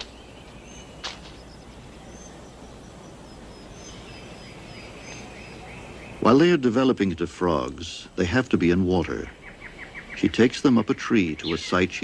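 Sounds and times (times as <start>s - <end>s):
background hiss: 0.0s - 12.0s
small animals chirping: 11.1s - 12.0s.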